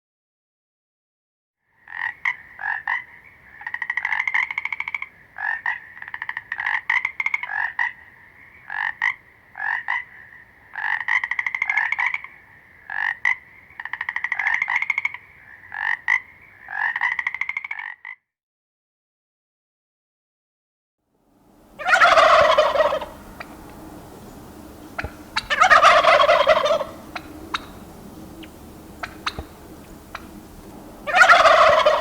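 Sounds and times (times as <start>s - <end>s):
frog croaking and trilling: 1.7s - 18.3s.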